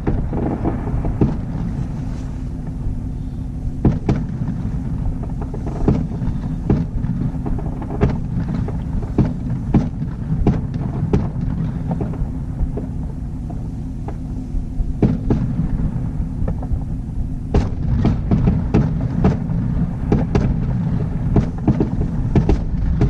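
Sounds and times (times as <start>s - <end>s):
fireworks bangs: 0.0s - 23.0s
low rumble: 0.0s - 23.0s.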